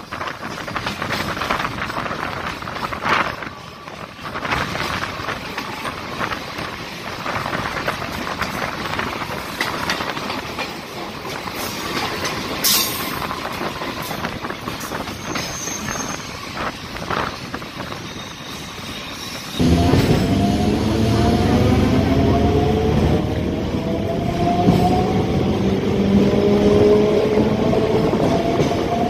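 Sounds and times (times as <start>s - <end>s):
wheels clicking over rail joints: 0.0s - 15.6s
passing train coaches: 0.0s - 29.0s
train rushing and rattling: 0.0s - 29.0s.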